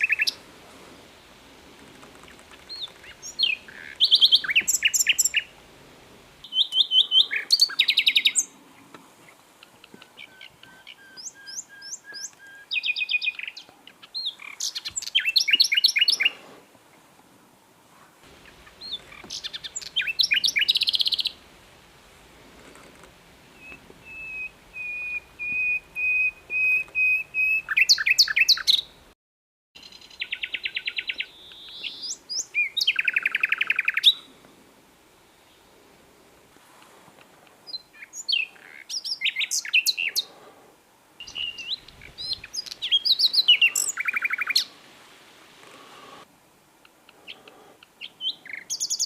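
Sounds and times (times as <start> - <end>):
nightingale singing: 0.0 - 0.4, 2.2 - 5.7, 6.4 - 16.4, 18.2 - 21.6, 23.4 - 29.1, 29.8 - 34.3, 37.6 - 40.4, 41.2 - 44.8, 46.8 - 49.0.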